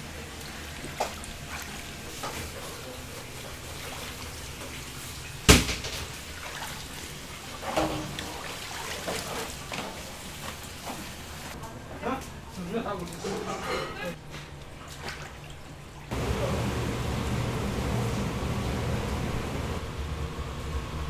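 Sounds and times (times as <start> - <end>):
light kitchen knocks and clatters: 2.2 - 6.9, 7.6 - 15.2
steady hiss: 16.1 - 21.0.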